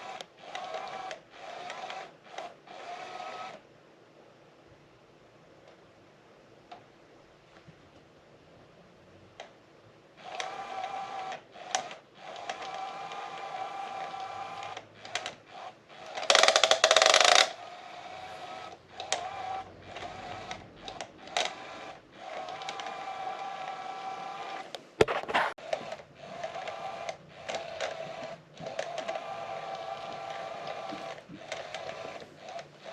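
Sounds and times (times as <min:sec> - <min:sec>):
toy motor whirring: 0:00.0 - 0:03.6, 0:10.2 - 0:32.9.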